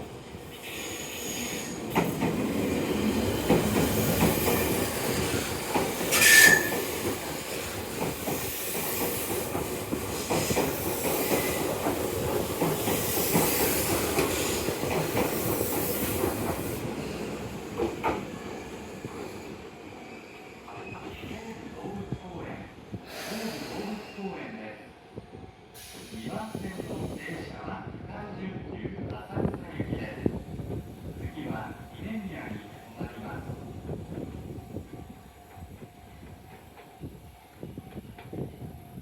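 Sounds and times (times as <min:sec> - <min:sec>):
train rumbling past: 0:00.0 - 0:24.2.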